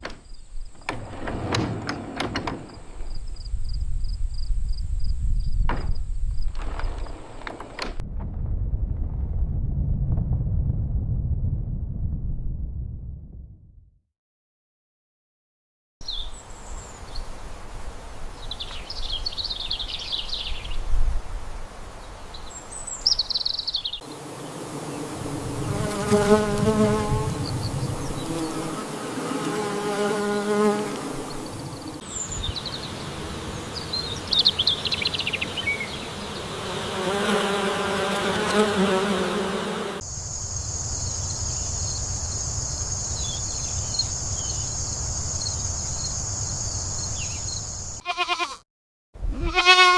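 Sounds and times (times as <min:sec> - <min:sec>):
small birds chirping: 0:16.0 - 0:17.3, 0:18.4 - 0:20.8, 0:22.0 - 0:28.7, 0:31.2 - 0:37.6, 0:40.1 - 0:48.0
insects buzzing: 0:21.5 - 0:48.0.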